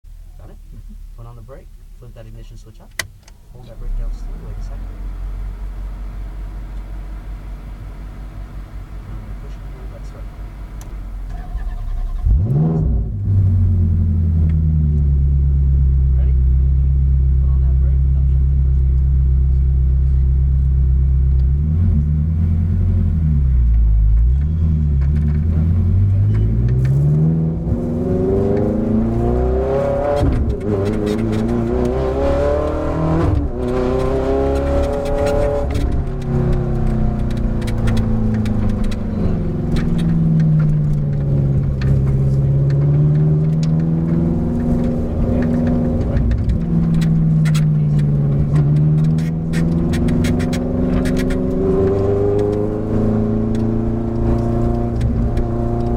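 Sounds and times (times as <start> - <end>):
race car engine accelerating: 7.8 - 55.9.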